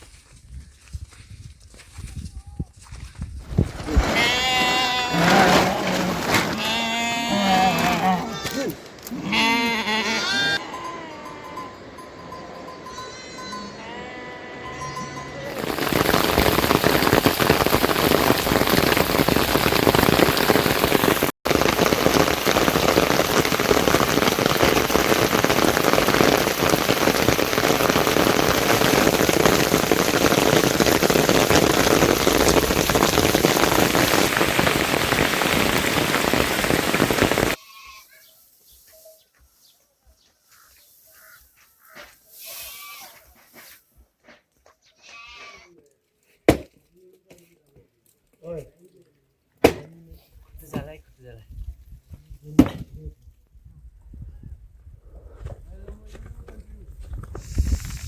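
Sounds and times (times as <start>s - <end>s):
heavy rain falling: 15.6s - 37.6s.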